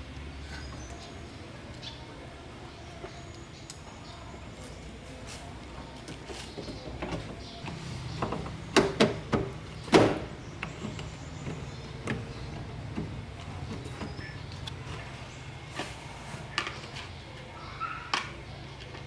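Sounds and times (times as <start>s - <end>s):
sharp knocks and clicks: 6.6s - 14.8s.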